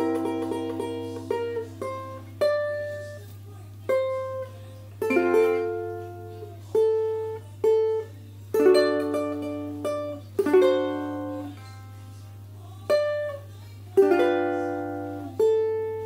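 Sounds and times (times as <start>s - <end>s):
ukulele plucked and strummed: 0.0s - 16.0s.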